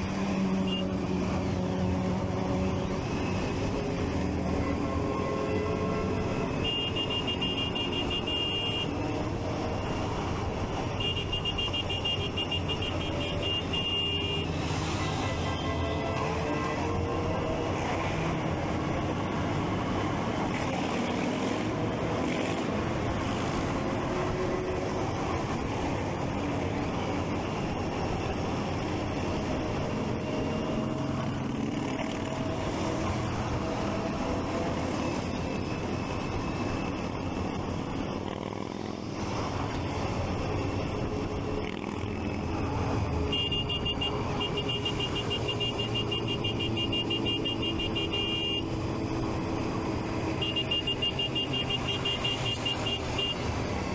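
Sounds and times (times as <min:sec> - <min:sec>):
traffic noise: 0:00.0 - 0:53.9.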